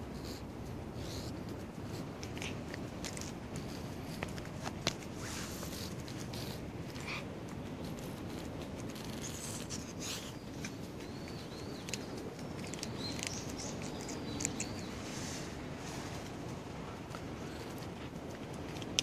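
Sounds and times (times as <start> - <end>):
steady low rumble: 0.0 - 19.0
small bird chirping: 7.8 - 15.4.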